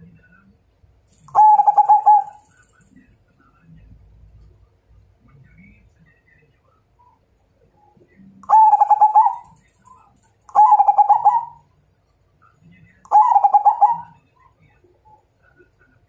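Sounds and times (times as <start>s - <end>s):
dove cooing: 1.3s - 2.5s, 8.4s - 9.7s, 10.5s - 11.6s, 13.1s - 14.2s.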